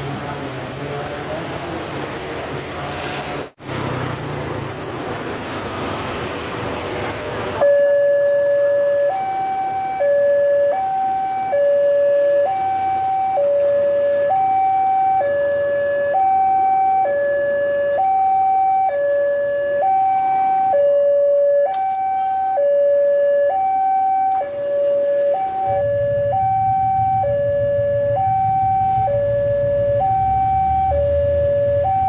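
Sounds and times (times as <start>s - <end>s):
level crossing two-tone alarm: 7.6s - 32.0s.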